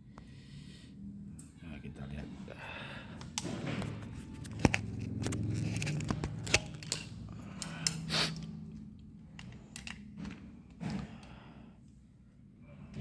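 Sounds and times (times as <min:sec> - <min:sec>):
clicks and scrapes of drill parts: 0:03.4 - 0:08.5.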